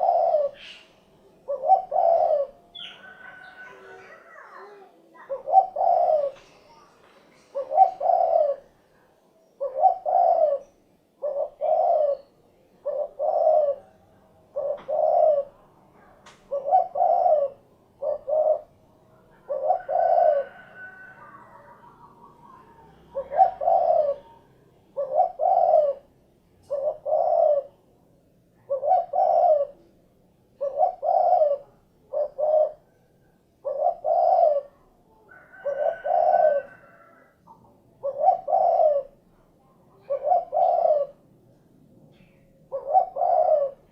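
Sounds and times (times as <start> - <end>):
dove cooing: 0.0 - 8.8, 9.6 - 27.9, 28.6 - 30.0, 30.6 - 41.3, 42.1 - 43.9.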